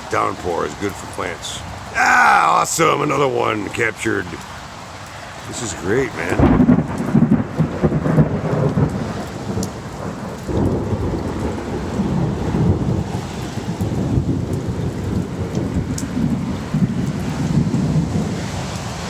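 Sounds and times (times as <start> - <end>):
light rain: 0.0 - 19.0
thunder rumbling: 5.6 - 18.6.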